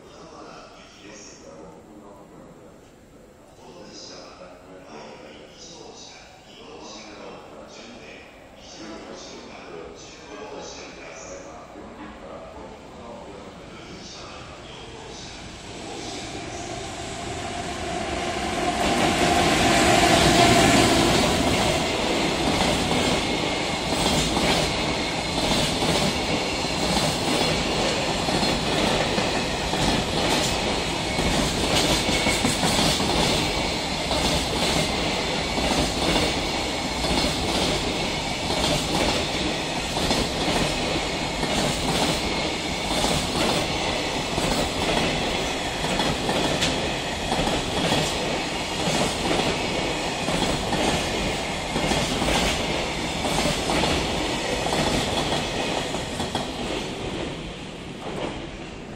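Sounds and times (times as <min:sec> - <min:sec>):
electric locomotive passing: 0:12.8 - 0:58.9.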